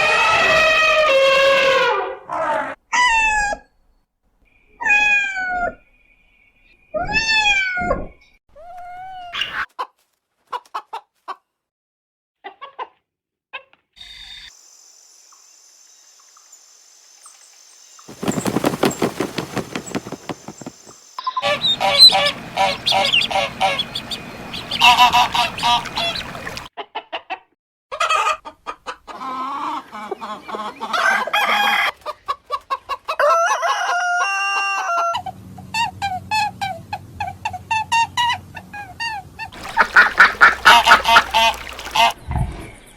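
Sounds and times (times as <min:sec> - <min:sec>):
chickens clucking: 0:18.1 - 0:26.7, 0:39.6 - 0:42.2
drawn-out fowl calls: 0:18.1 - 0:26.7, 0:39.6 - 0:42.2.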